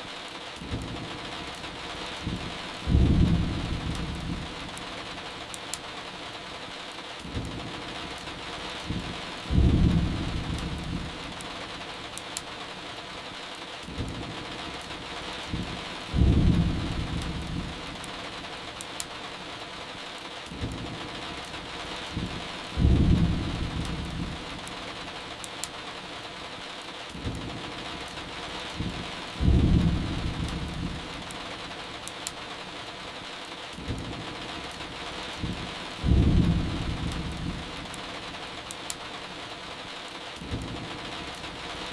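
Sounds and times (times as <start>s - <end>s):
steady rain: 0.0s - 41.9s
firewood crackling: 0.5s - 26.3s, 27.0s - 41.9s
rolling thunder: 2.2s - 4.6s, 8.9s - 11.2s, 15.5s - 17.8s, 22.1s - 24.5s, 28.8s - 31.2s, 35.4s - 37.8s.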